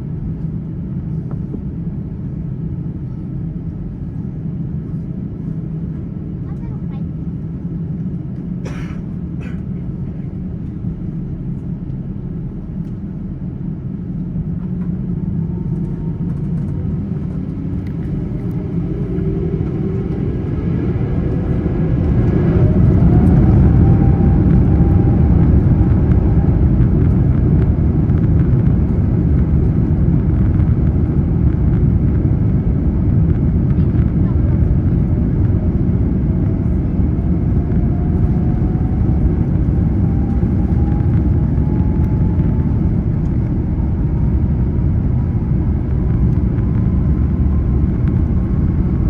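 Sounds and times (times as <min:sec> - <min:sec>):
jet engines spooling up: 0:15.7 - 0:49.0.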